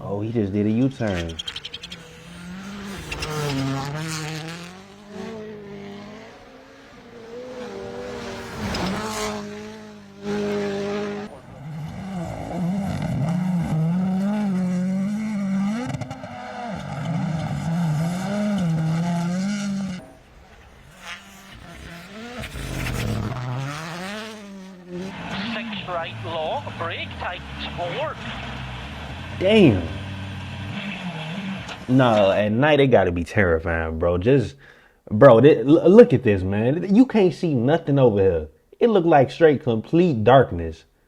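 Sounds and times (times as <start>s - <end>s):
rally car engine revving: 0.0s - 32.5s.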